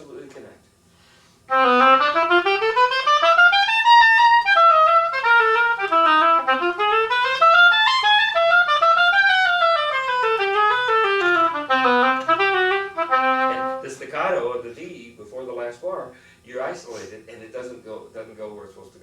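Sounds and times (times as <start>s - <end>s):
oboe melody: 1.5s - 14.1s.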